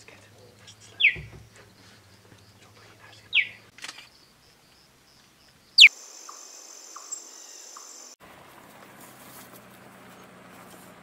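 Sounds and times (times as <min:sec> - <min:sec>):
faint chirps: 0:00.0 - 0:08.2
high insect drone: 0:04.1 - 0:08.2.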